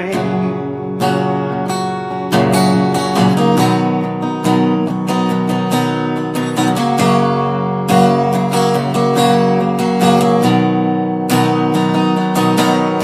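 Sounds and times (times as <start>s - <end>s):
person singing: 0.0s - 1.8s
strummed acoustic guitar: 0.0s - 13.0s.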